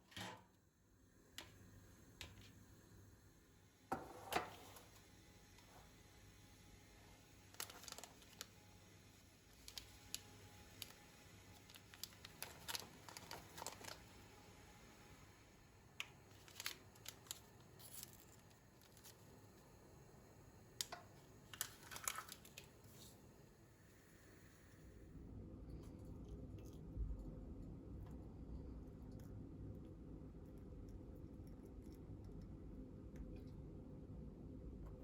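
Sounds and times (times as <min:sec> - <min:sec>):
packaging crinkling: 0:07.6 - 0:08.5, 0:11.7 - 0:14.0, 0:16.3 - 0:19.2, 0:21.5 - 0:22.7.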